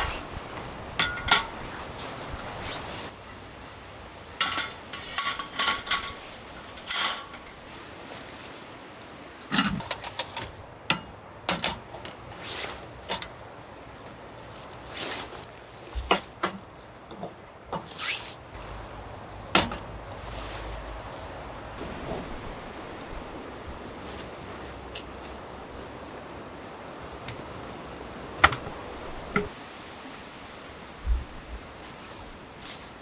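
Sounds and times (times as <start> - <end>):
clinks and knocks of metal objects: 4.4 - 7.7.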